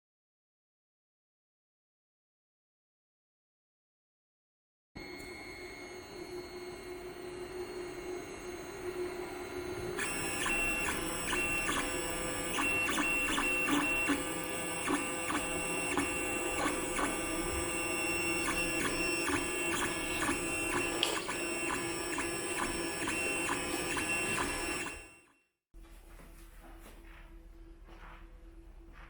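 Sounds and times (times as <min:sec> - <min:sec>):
steady hum: 0:05.0 - 0:25.1
stepper motors whining: 0:05.0 - 0:25.2
print head ticks: 0:10.0 - 0:25.1.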